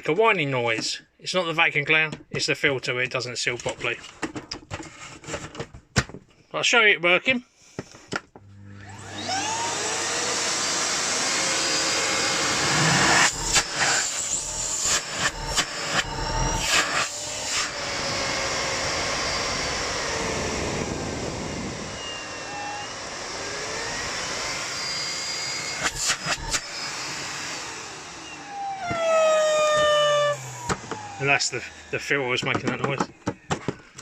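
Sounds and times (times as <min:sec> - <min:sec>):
vacuum cleaner running: 0:08.4 - 0:34.0
vacuum whining whistle: 0:08.8 - 0:32.1.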